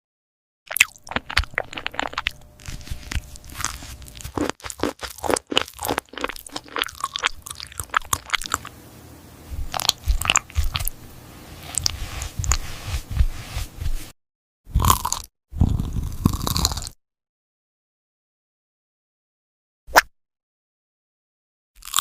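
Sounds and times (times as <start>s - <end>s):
cat crunching dry food: 0.8s - 8.6s, 14.9s - 16.9s.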